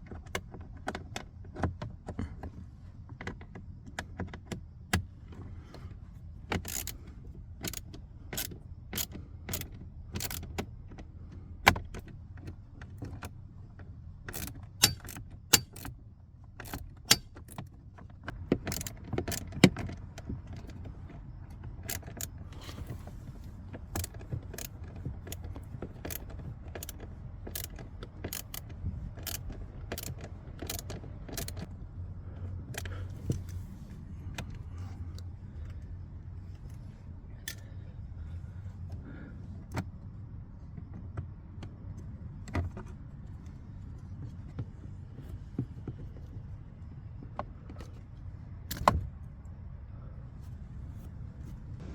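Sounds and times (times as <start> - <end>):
low steady hum: 3.8 - 51.9
hand tools clicking and knocking: 14.3 - 15.9.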